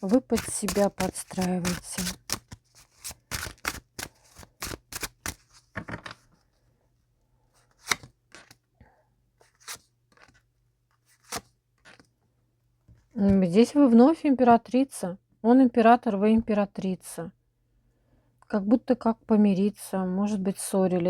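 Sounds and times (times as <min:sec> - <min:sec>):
cards shuffling: 0:00.0 - 0:05.8, 0:07.7 - 0:08.6, 0:09.4 - 0:10.4, 0:11.0 - 0:12.0.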